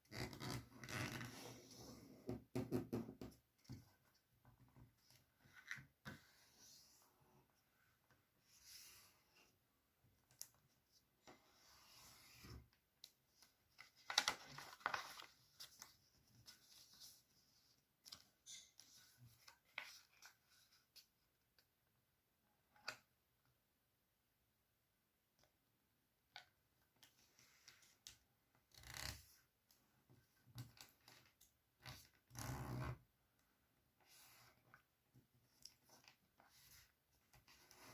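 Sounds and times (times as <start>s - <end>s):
paper rustling and folding: 13.3s - 21.1s, 35.5s - 37.9s
paper rustling creases: 13.4s - 17.2s
paper crinkling: 13.8s - 15.9s.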